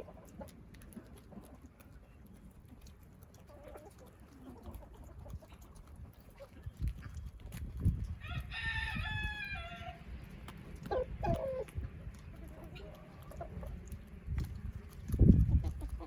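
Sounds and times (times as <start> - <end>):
rooster crowing: 8.2 - 10.0.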